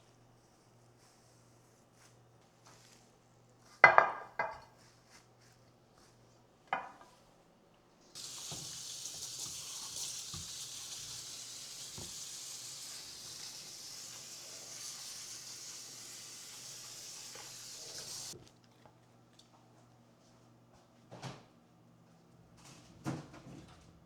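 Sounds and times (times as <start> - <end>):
kitchenware clinking: 3.8 - 4.7
steady high hiss: 8.2 - 18.4.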